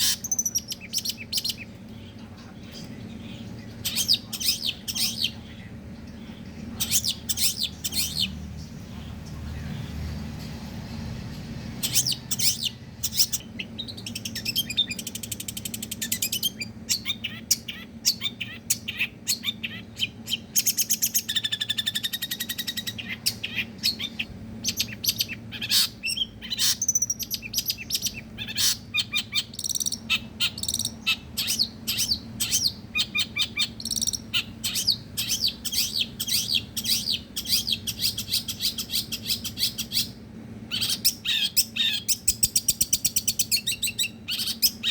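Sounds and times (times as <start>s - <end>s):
shrike singing: 0.0s - 10.0s
faint low hum: 0.0s - 44.9s.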